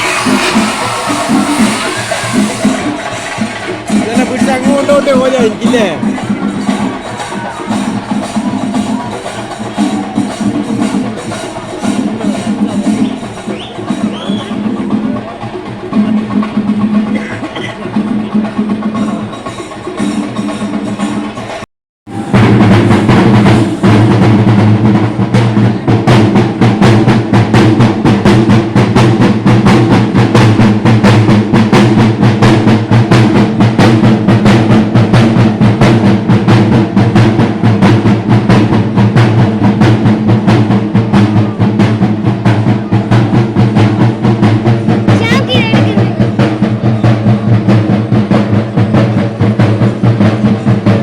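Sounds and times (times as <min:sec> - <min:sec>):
fast drum ensemble rhythm: 0:00.0 - 0:51.0.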